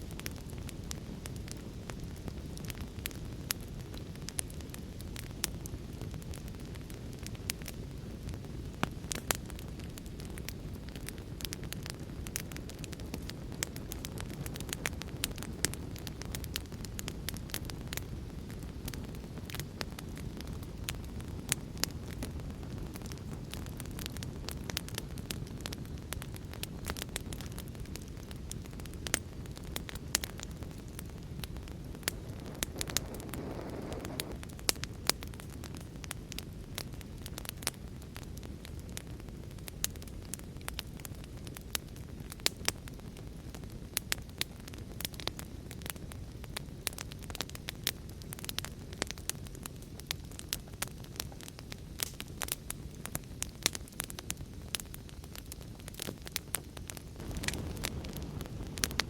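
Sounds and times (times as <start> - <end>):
wood fire crackling and popping: 0.0 - 59.0
low rushing background: 32.0 - 34.4.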